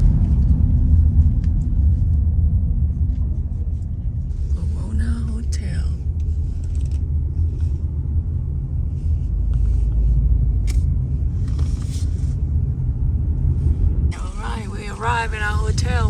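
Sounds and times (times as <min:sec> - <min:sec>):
car driving rumble: 0:00.0 - 0:16.0.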